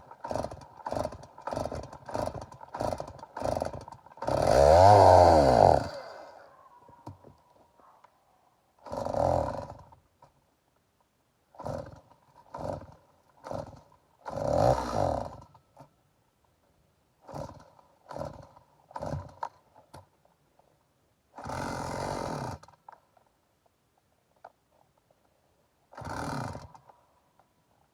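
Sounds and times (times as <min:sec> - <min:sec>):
chainsaw pull-starting and dying: 0:00.0 - 0:07.3, 0:08.8 - 0:10.3, 0:11.5 - 0:15.9, 0:17.2 - 0:20.2, 0:21.3 - 0:23.3, 0:25.8 - 0:27.1.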